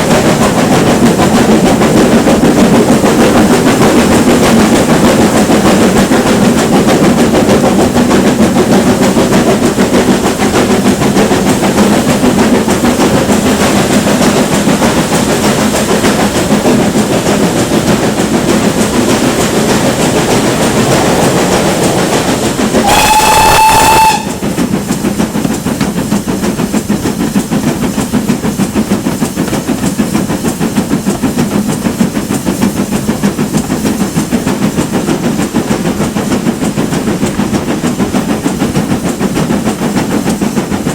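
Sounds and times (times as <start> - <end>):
steam train running: 0.0 - 40.9
steam whistle blast: 22.8 - 24.4.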